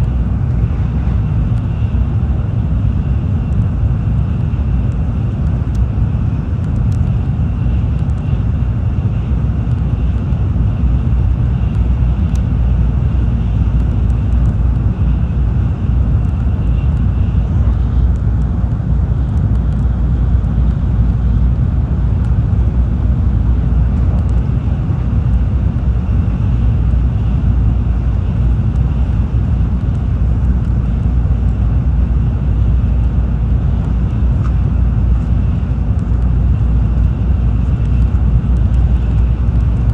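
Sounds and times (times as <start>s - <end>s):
train wheels rumbling on rail: 11.0s - 31.5s.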